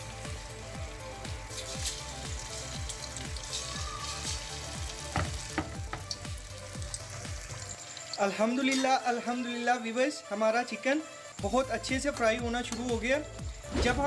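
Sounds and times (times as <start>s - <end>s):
chicken sizzling in hot oil: 0.0s - 10.1s.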